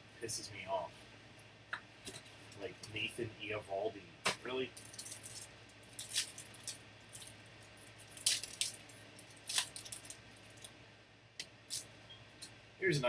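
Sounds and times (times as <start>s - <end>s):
faint room hum: 0.0s - 13.0s
card packaging crinkles and clicks: 4.8s - 10.7s.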